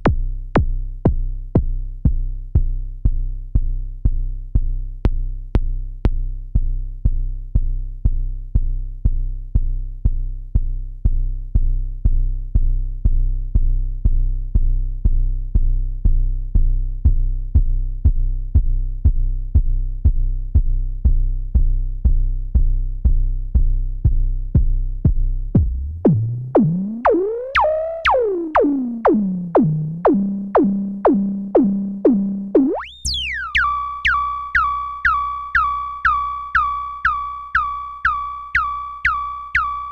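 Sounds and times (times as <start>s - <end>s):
synthesizer plucked bass notes: 25.6s - 39.9s.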